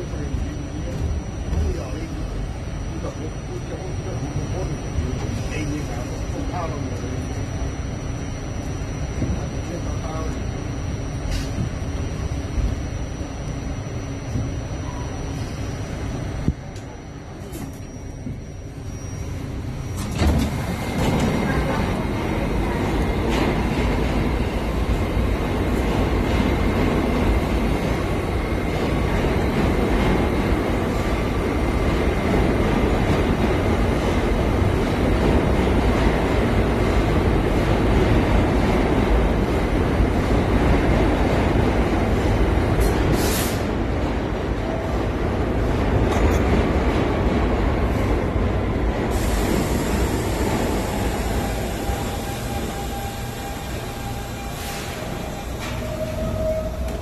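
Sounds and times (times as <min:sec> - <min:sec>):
faint steady whine: 0:00.0 - 0:20.8
thin steady whine: 0:00.0 - 0:42.4
subway car wheels rumbling on rail: 0:00.0 - 0:57.0.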